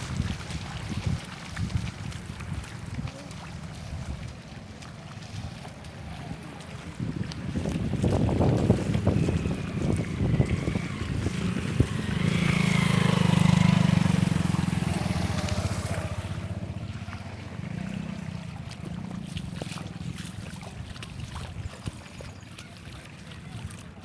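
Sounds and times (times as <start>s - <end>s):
vehicle engine passing by: 8.2s - 20.8s.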